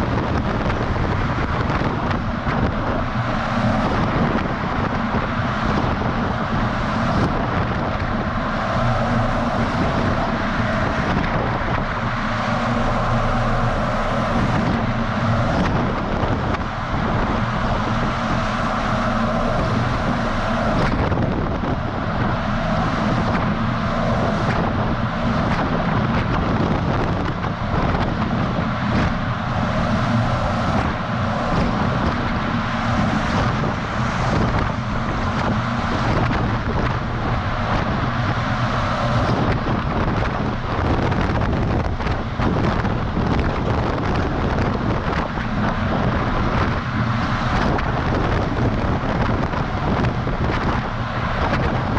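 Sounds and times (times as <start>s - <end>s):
truck engine and tyre rumble: 0.0s - 51.9s
wind buffeting on microphone: 0.0s - 51.9s.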